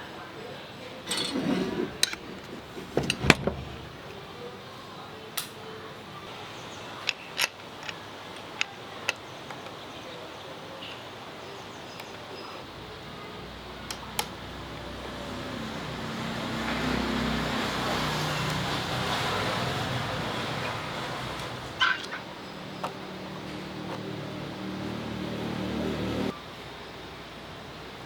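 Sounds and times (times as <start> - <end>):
metal tools clicking and clinking: 1.1 - 3.9.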